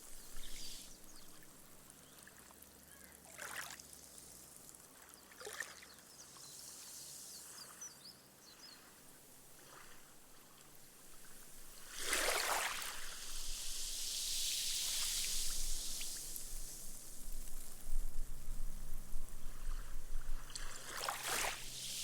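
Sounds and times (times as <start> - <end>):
foamy wash hissing on sand: 0.0 - 1.7, 8.7 - 22.0
sea wave breaking on sand: 11.8 - 17.6, 20.5 - 22.0.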